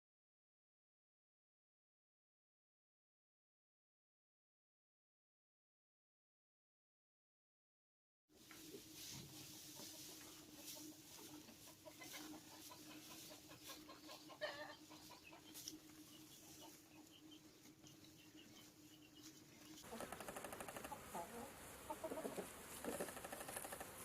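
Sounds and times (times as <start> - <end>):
chickens clucking: 8.4 - 24.0.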